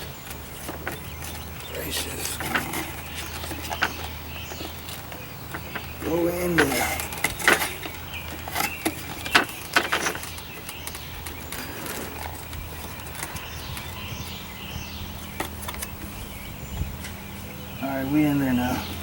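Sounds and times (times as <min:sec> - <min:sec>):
clicks and knocks of metal parts: 0:00.0 - 0:14.4.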